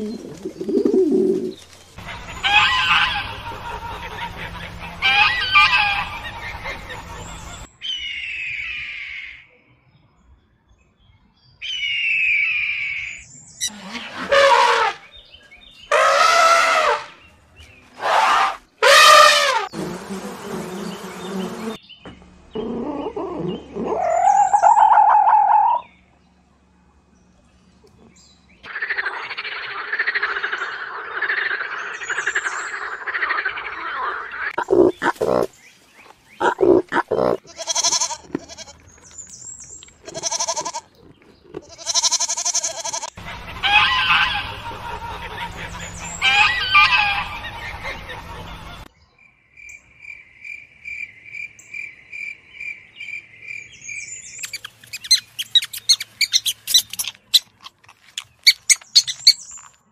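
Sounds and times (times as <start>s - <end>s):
loud animal calls: 2.0s - 9.4s, 22.6s - 25.8s, 28.7s - 35.5s, 36.4s - 38.7s, 41.7s - 48.8s
toads calling in chorus: 28.7s - 35.5s, 54.4s - 59.4s
goats bleating: 36.4s - 38.8s, 40.0s - 40.9s, 41.6s - 43.2s
young hamsters squeaking: 54.4s - 59.8s.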